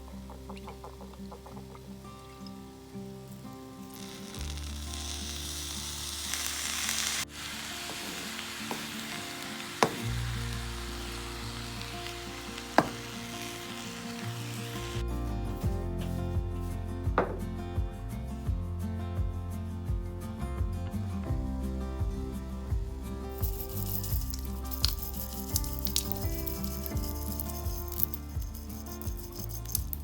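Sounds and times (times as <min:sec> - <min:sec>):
fried rice sizzling in pan: 0:03.8 - 0:15.0.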